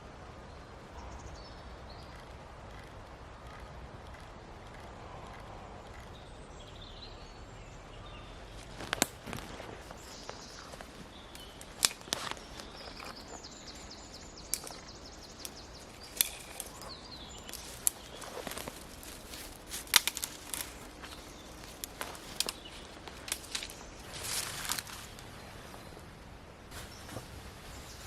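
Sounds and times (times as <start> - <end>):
faint high bird calls: 0.0 - 26.1
clicks and knocks of handling things: 17.5 - 25.0.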